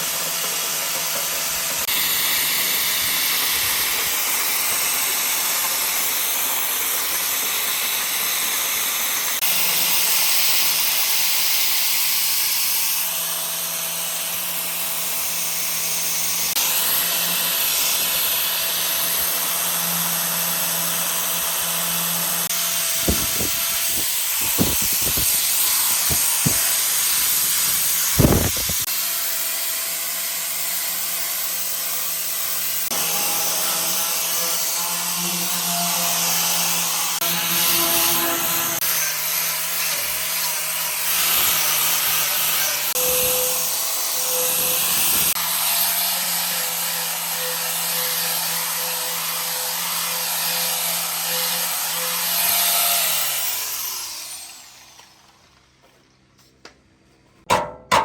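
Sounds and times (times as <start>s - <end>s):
power tool running with hiss: 0.0s - 55.6s
sharp knocks: 25.9s - 26.8s, 57.4s - 58.0s.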